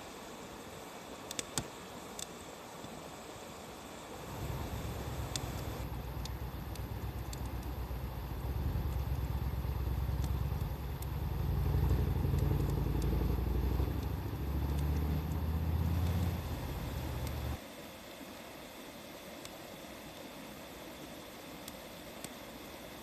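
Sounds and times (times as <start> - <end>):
wood fire crackling: 1.2 - 2.9, 4.1 - 17.6
low motor rumble: 4.2 - 17.6.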